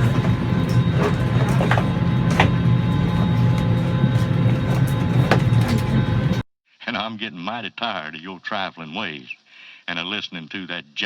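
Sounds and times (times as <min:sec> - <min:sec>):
ventilation running: 0:00.0 - 0:06.4
airliner cabin drone: 0:00.0 - 0:06.5.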